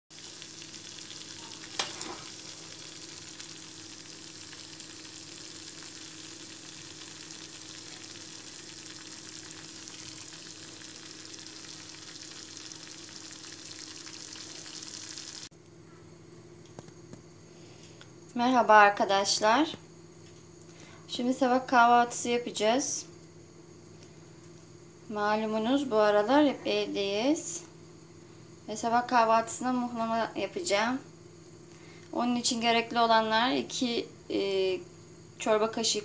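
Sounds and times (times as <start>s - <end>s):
cheese sizzling in a pot: 0.1s - 15.5s, 27.0s - 36.0s.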